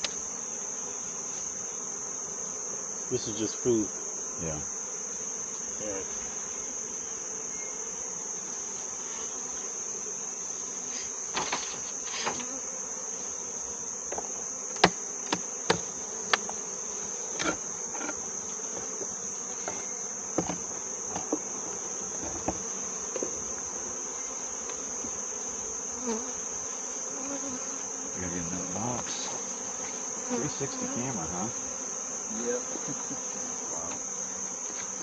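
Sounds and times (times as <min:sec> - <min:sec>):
bees buzzing: 0:00.0 - 0:35.0
hive parts knocking: 0:14.1 - 0:16.6, 0:17.4 - 0:21.5.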